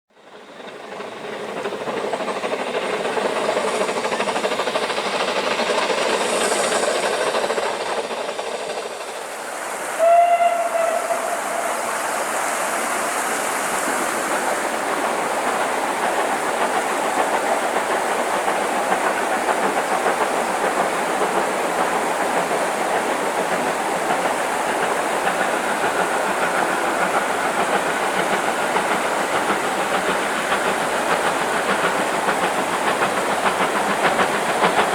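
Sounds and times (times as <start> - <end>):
steam locomotive hissing: 0.2 - 34.9
steam whistle blast: 9.9 - 13.3.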